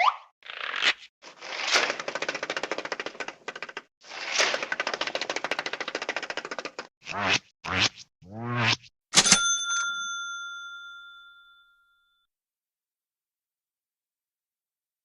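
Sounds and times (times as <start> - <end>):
cartoon rapid clattering clicks: 1.6 - 6.9.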